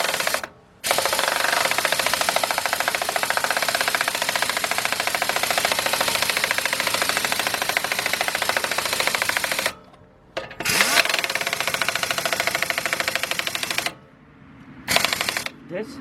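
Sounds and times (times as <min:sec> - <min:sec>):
air impact wrench hammering: 0:00.0 - 0:14.0, 0:14.9 - 0:15.6.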